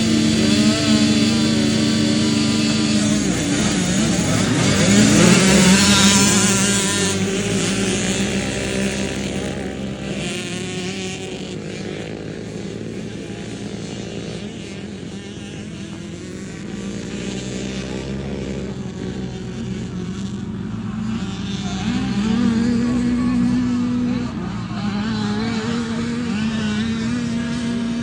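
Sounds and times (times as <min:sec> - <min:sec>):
dirt bike engines running: 0:00.0 - 0:28.0.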